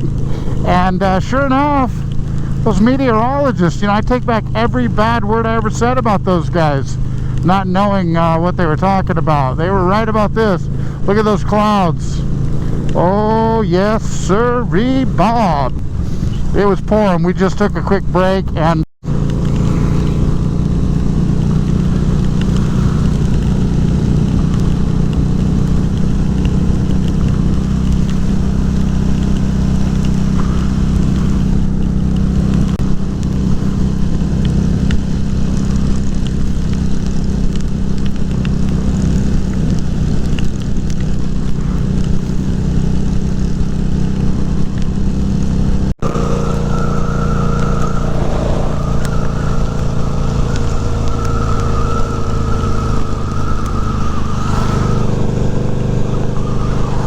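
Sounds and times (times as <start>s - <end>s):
motorcycle engine running: 0.0s - 16.6s, 18.5s - 57.0s
higher whine: 46.0s - 57.0s.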